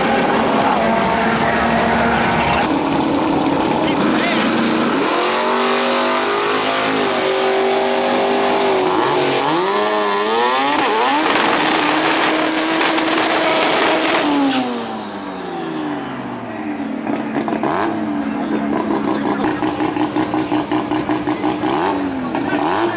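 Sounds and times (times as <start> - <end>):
race car engine at full throttle: 0.0 - 22.9.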